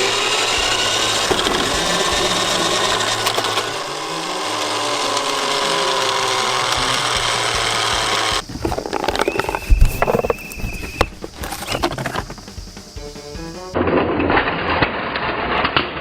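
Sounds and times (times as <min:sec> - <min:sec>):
toy truck motors whirring: 0:00.0 - 0:12.6.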